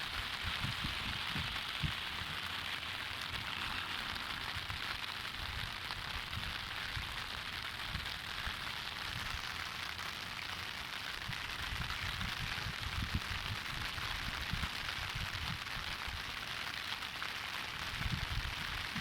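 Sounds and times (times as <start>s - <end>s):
wind buffeting microphone: 0.0s - 2.5s, 11.2s - 15.9s, 17.9s - 19.0s
river rushing: 0.0s - 5.4s.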